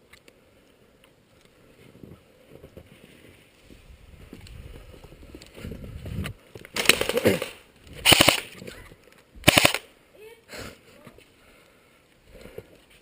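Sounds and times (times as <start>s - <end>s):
airsoft gun full-auto burst: 6.8s - 8.5s, 9.4s - 9.9s.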